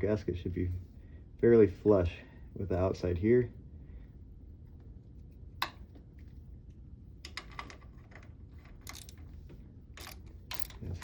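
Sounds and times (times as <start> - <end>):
clicks of metal tools: 8.8 - 9.2, 10.0 - 11.0.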